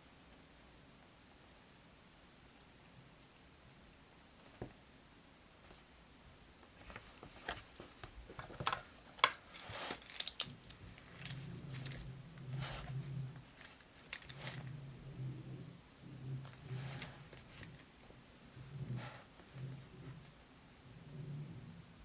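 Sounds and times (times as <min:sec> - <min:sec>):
paper rustling: 0:06.8 - 0:14.7
rubbing or scratching: 0:09.4 - 0:15.4, 0:16.2 - 0:17.9.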